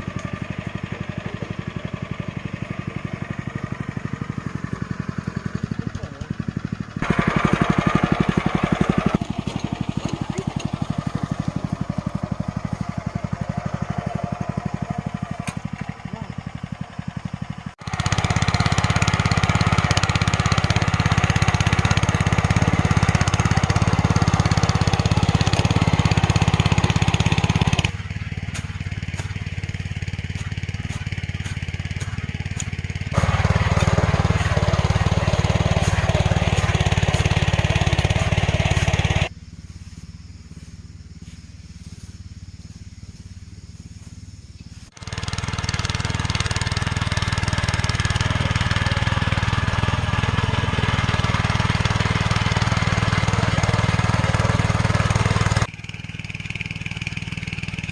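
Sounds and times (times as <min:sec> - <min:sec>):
small engine running: 0:00.0 - 0:57.9.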